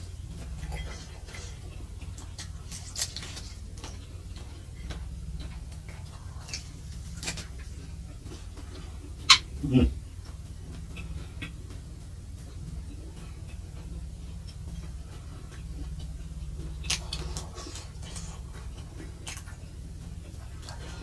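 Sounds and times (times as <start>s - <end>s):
low steady hum: 0.0s - 21.0s
person chewing: 0.0s - 21.0s
wet mouth clicks and smacks: 15.6s - 19.6s.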